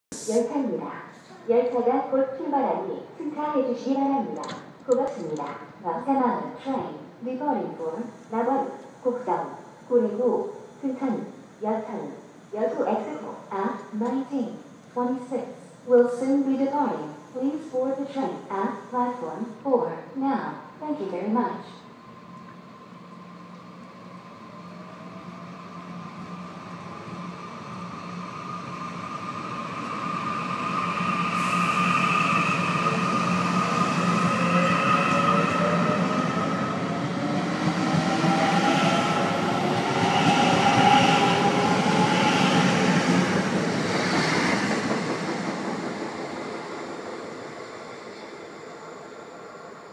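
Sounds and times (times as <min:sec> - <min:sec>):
train wheels rolling on rails: 0:22.2 - 0:48.5.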